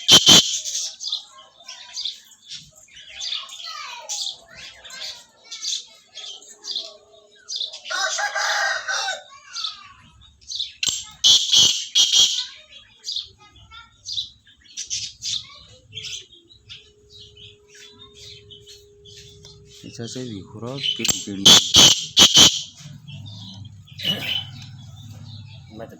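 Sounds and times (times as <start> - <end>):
budgerigars chirping: 0.0 - 1.2, 10.5 - 13.4, 14.1 - 25.9
harsh burst of bird calls: 0.0 - 5.8, 6.6 - 25.9
rooster crowing: 7.9 - 9.4.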